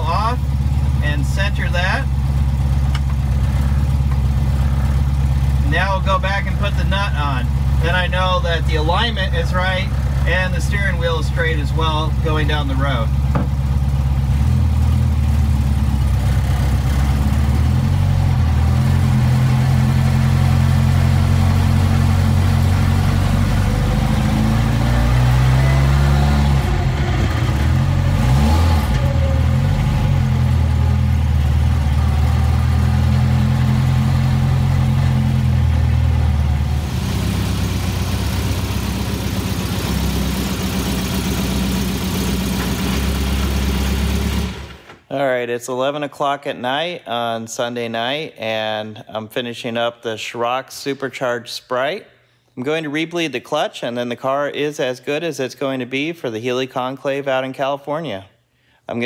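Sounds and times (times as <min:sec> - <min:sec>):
car engine running: 0:00.0 - 0:45.0.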